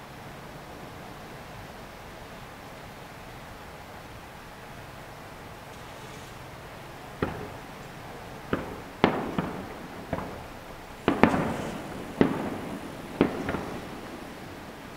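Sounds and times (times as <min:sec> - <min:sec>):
firework shells bursting: 0:05.7 - 0:14.9.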